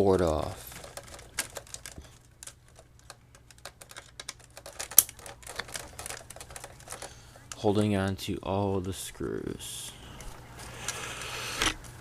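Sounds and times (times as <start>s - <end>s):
plastic parts being handled: 0.0s - 7.8s.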